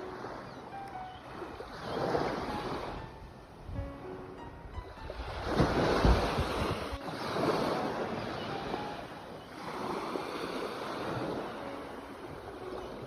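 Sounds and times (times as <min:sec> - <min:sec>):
sea waves breaking: 0:00.0 - 0:13.0
wind rumble on microphone: 0:01.6 - 0:09.0.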